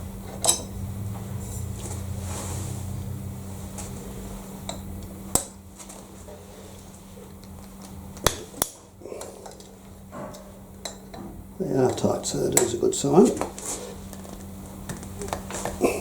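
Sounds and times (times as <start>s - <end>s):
low hum: 0.0s - 13.0s
metal tools clinking on vice: 0.4s - 0.7s.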